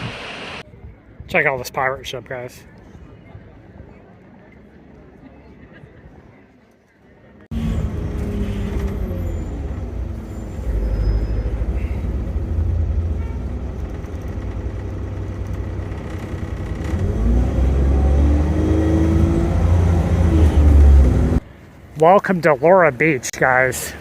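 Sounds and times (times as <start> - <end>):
traffic engines rumbling: 0.7 - 24.0
engine rising in pitch: 7.5 - 21.4.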